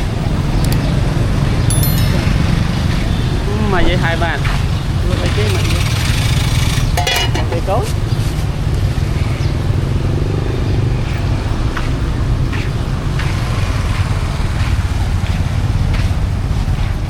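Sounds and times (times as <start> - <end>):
motorbike engine rumbling: 0.0 - 8.4.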